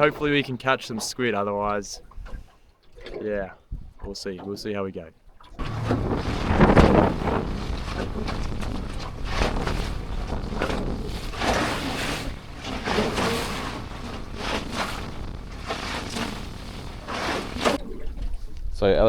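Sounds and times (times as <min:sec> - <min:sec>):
sea water sloshing around boat: 0:00.0 - 0:04.6, 0:05.2 - 0:18.8
wind buffeting microphone: 0:05.6 - 0:19.0.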